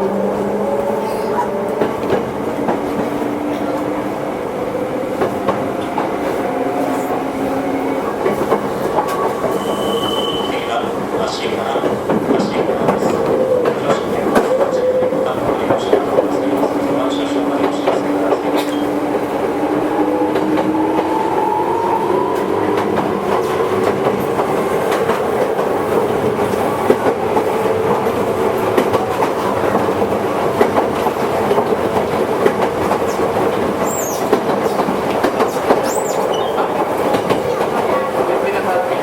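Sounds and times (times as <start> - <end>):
electric train rumbling: 0.0 - 39.0
high wheel squeals: 9.4 - 10.7.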